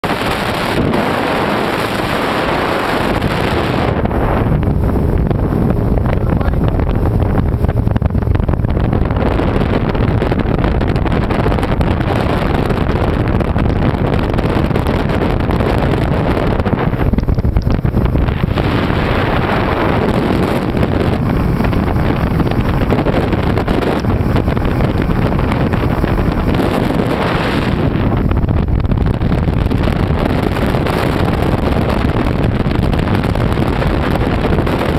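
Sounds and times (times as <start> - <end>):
motorboat engine drone: 0.0 - 34.9
wind noise on microphone: 0.0 - 34.9
rushing water: 14.2 - 34.9.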